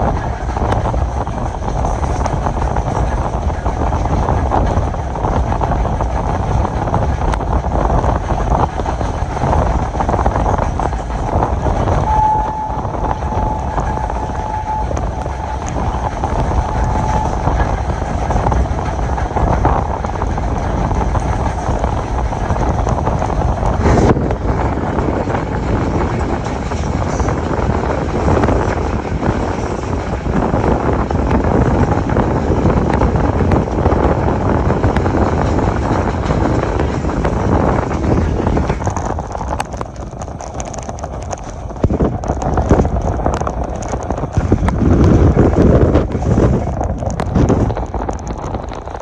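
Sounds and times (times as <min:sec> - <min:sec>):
train rumbling on track: 0:00.0 - 0:49.0
faint thin tone: 0:12.0 - 0:17.4.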